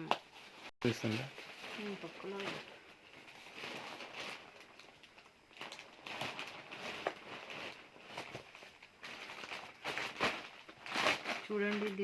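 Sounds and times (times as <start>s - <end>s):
parcel packaging rustling: 0.4s - 12.0s.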